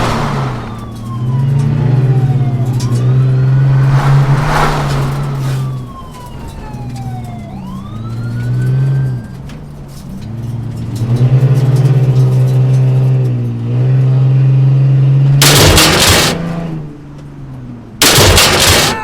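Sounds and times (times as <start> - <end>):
vehicle rushing past: 0.0 - 1.1, 2.1 - 6.4
car engine running: 0.0 - 1.2, 15.4 - 16.7, 18.0 - 19.0
police siren wailing: 0.0 - 3.8, 5.2 - 9.6, 15.4 - 16.4, 18.0 - 19.0.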